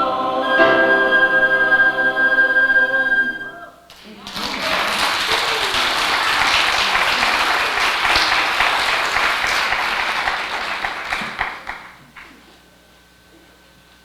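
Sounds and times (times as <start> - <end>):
audience applauding: 3.9 - 12.4.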